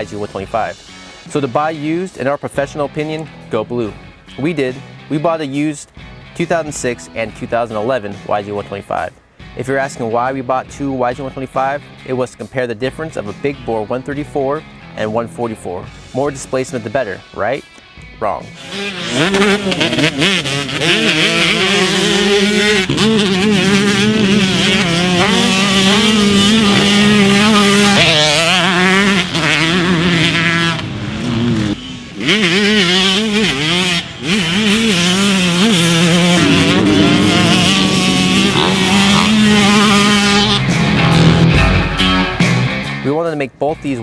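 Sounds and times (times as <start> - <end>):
two-stroke motocross engine revving: 18.5 - 42.9.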